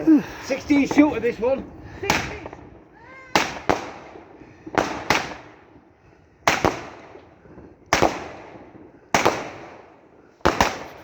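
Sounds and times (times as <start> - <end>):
firework cake bangs: 2.0 - 5.6, 6.4 - 7.2, 7.9 - 11.0.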